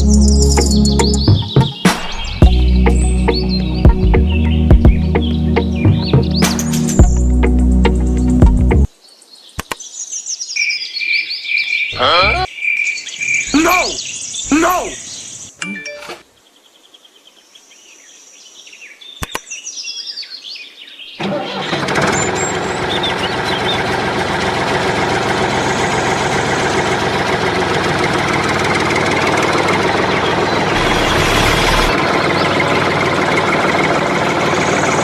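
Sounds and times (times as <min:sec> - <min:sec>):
birds chirping: 0:00.0 - 0:07.3, 0:08.2 - 0:24.5, 0:25.1 - 0:35.0
small engine running: 0:21.2 - 0:35.0.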